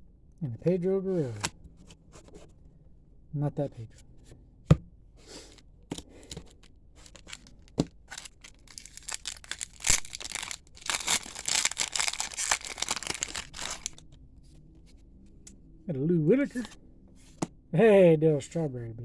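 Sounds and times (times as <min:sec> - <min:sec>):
wrapper crackling and tearing: 0:06.5 - 0:14.2.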